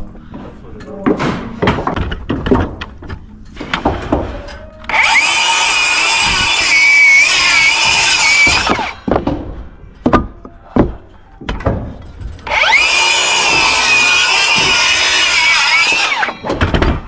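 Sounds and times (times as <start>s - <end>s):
circular saw cutting wood: 4.9s - 9.0s, 12.4s - 16.5s.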